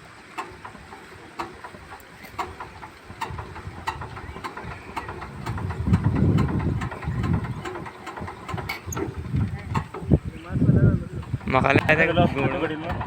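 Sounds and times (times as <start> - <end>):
diesel engine rumbling: 0.0 - 13.0
sharp repeating tick: 1.4 - 10.2.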